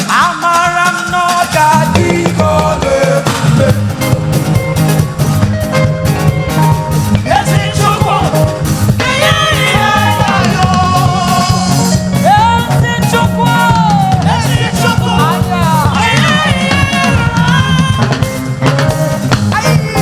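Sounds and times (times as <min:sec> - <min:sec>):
gospel band playing: 0:00.0 - 0:20.0
person singing held lines: 0:07.2 - 0:18.4, 0:19.5 - 0:20.0.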